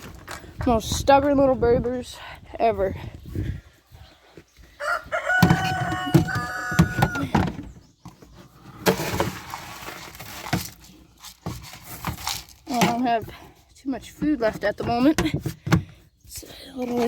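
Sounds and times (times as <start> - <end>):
rooster crowing: 4.8 - 7.3
rustling noise: 8.0 - 13.4.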